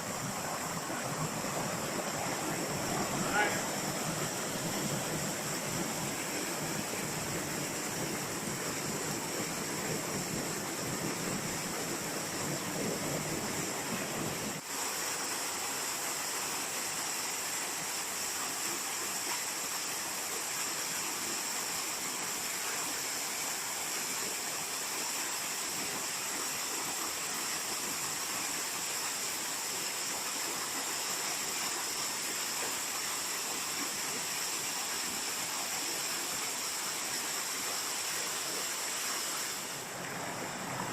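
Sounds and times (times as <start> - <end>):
waterfall rushing: 0.0 - 12.2, 33.9 - 40.9.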